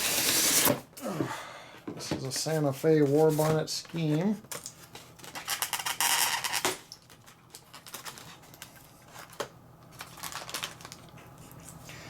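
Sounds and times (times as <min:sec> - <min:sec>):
faint steady hum: 0:00.0 - 0:12.0
packaging rustling and clicking: 0:04.5 - 0:11.6.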